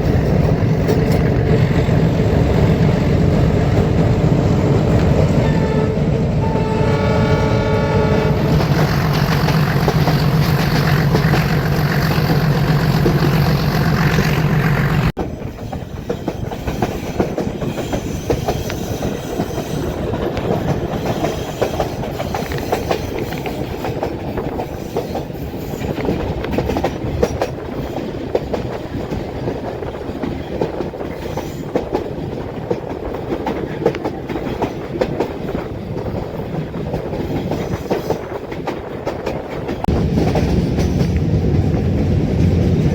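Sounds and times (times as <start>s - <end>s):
train wheels clickety-clack: 0.0s - 7.5s, 8.4s - 42.9s
train horn: 5.2s - 9.4s.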